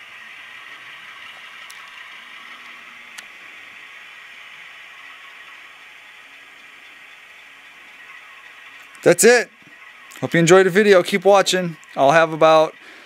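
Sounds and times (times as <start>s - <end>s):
model locomotive diesel engine sound: 0.0s - 13.0s.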